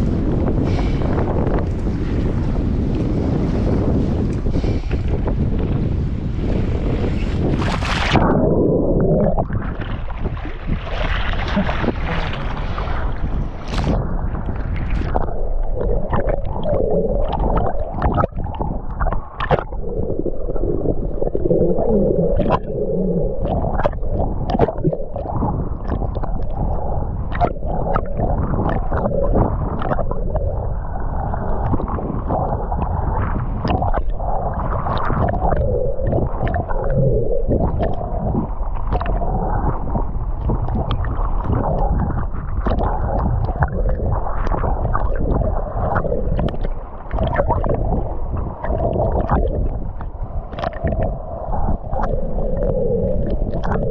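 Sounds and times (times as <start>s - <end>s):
muffled underwater water rush: 0.0s - 53.9s
gurgling bubbles: 6.9s - 53.9s
splashy water surface: 7.5s - 8.3s, 9.4s - 14.0s
underwater clicks and knocks: 13.6s - 19.8s, 23.4s - 26.6s, 29.8s - 30.5s, 33.6s - 34.1s, 34.8s - 51.2s, 51.9s - 53.9s.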